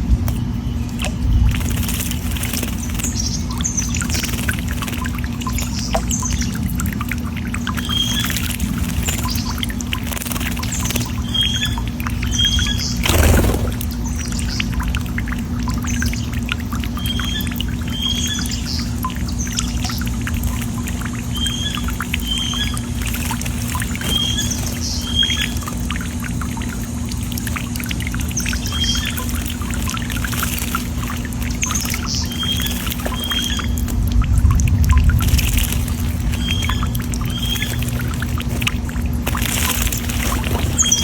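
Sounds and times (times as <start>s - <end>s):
small birds chirping: 7.5s - 14.8s, 16.9s - 26.3s, 28.0s - 34.0s, 35.2s - 41.0s.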